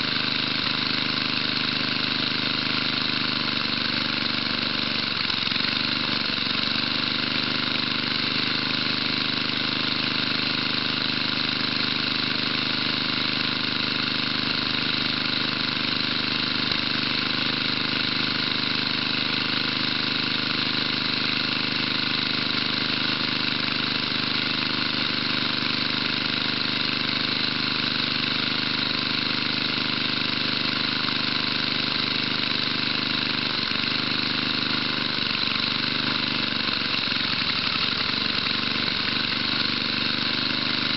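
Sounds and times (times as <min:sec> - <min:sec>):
single-cylinder engine running: 0:00.0 - 0:40.9.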